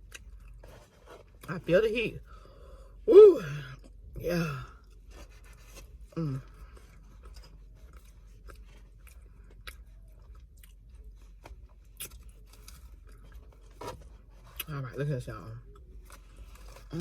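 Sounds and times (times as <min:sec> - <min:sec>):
person chewing food: 0:00.0 - 0:01.5, 0:03.7 - 0:14.7.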